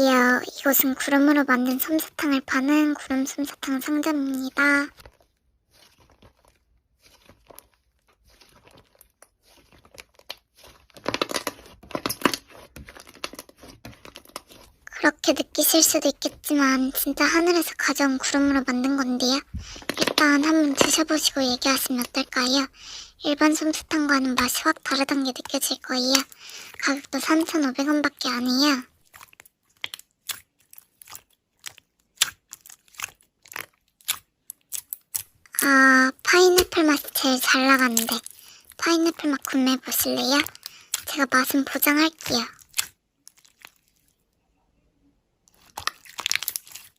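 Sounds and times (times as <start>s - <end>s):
slime squeezed by hand: 4.5s - 14.8s, 45.5s - 46.9s
slime crunchy clicks and pops: 29.1s - 35.6s, 42.6s - 43.8s, 45.5s - 46.9s.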